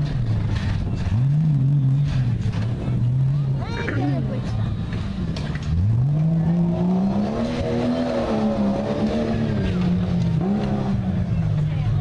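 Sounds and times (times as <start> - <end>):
engine revving hard: 5.7 - 11.2.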